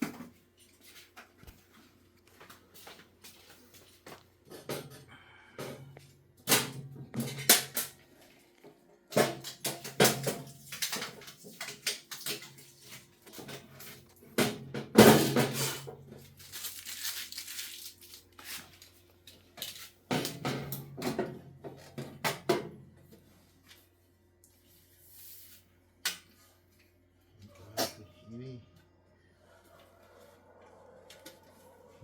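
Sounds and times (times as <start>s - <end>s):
objects knocking and clattering: 0.0s - 0.5s, 4.1s - 8.0s, 9.1s - 16.3s, 19.6s - 23.0s
packaging rustling: 16.2s - 19.0s.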